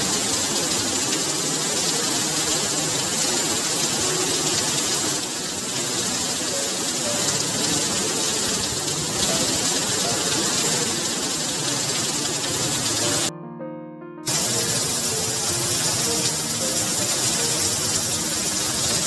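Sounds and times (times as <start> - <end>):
heavy rain on pavement: 0.0 - 13.3, 14.3 - 19.0.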